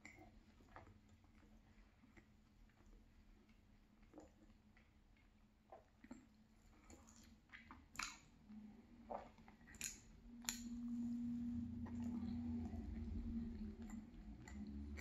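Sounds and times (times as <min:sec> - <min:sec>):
person chewing and lip smacking: 0:00.0 - 0:15.0
steady low hum: 0:08.4 - 0:15.0.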